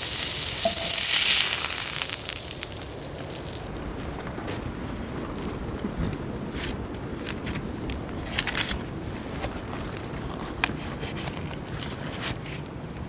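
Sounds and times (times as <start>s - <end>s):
wood fire crackling: 0.0s - 3.8s.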